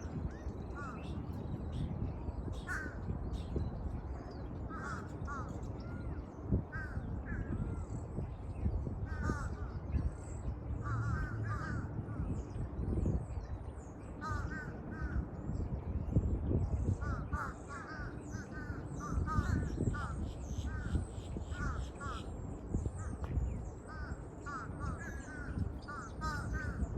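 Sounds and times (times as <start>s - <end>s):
birds chirping: 0.0s - 26.9s
crows cawing: 4.7s - 5.6s, 10.8s - 11.9s, 14.2s - 15.2s, 17.0s - 22.3s, 23.8s - 26.9s.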